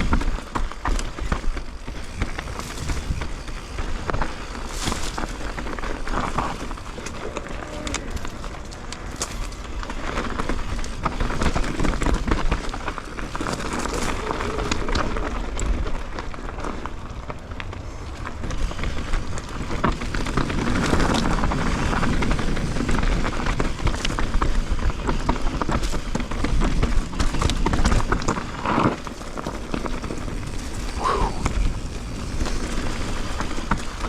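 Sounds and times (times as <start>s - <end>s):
bike clicks and knocks: 0.0s - 34.0s
tyres crunching over rocks: 0.0s - 34.0s
wind rumbling on microphone: 0.0s - 34.0s.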